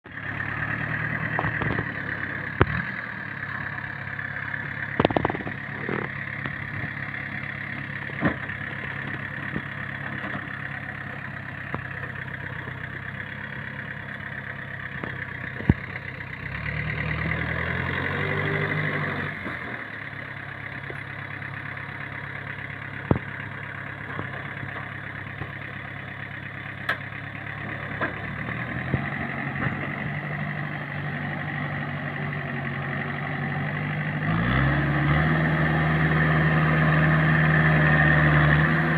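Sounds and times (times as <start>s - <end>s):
truck diesel engine droning: 0.0s - 38.9s
sharp knocks and rattles: 5.0s - 7.0s.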